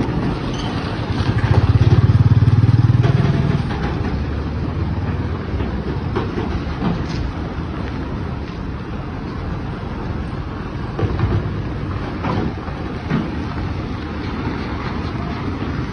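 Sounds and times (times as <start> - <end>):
truck diesel engine rumbling: 0.0 - 15.9.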